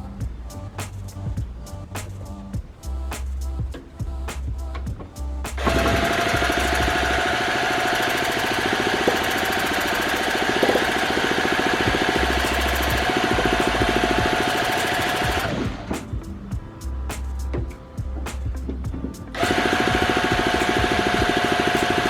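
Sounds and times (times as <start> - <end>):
electric starter spinning model engine: 5.6 - 15.9, 19.3 - 22.0.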